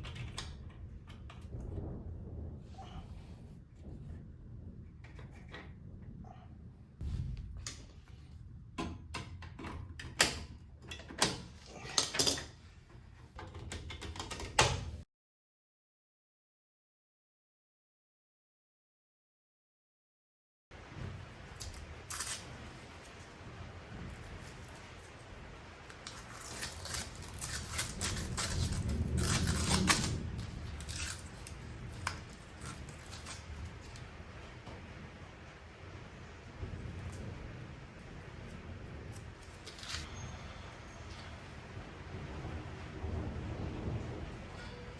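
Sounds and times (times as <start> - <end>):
low rumble: 0.4 - 8.8, 20.8 - 44.9.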